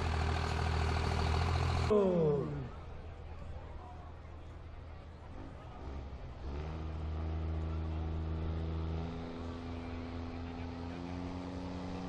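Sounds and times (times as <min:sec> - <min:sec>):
diesel truck engine running: 0:00.0 - 0:02.8.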